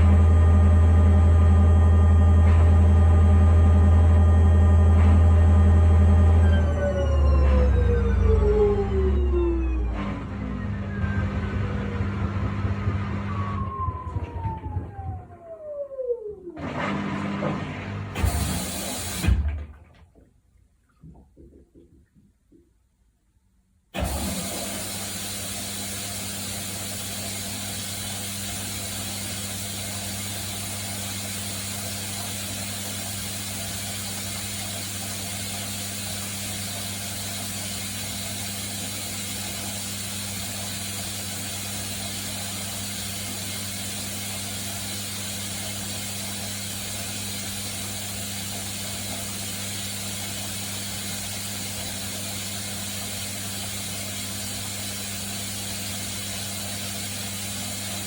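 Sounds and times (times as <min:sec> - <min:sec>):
washing machine spinning: 0:00.0 - 0:19.9, 0:24.0 - 0:58.0.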